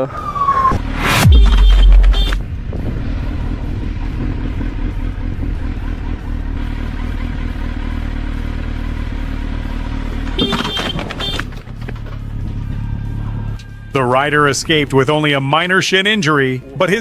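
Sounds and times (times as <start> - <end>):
road and wind noise: 0.0 - 17.0
motorcycle engine running: 1.2 - 13.6.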